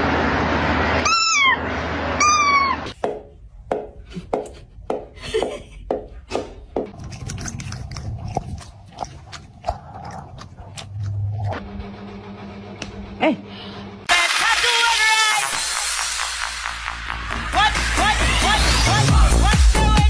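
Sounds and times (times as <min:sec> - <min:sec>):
cat meowing: 0:01.0 - 0:01.6, 0:02.2 - 0:02.9.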